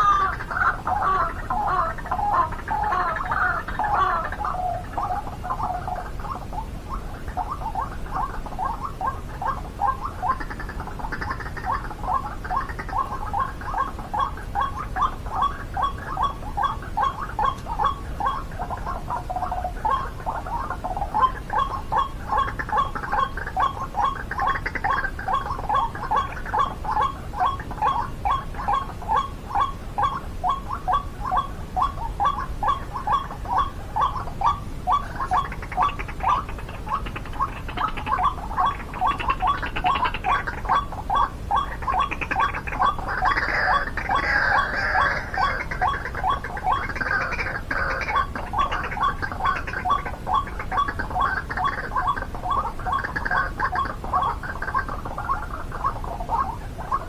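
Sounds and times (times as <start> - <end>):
waterhen croaking calls: 0.0 - 57.0.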